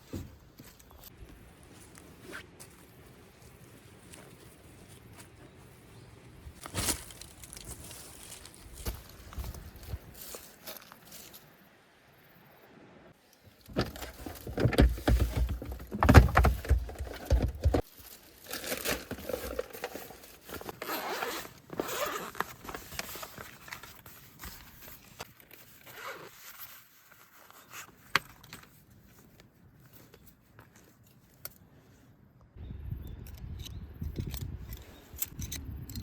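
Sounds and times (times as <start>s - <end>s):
objects rustling and scraping: 13.4s - 32.1s.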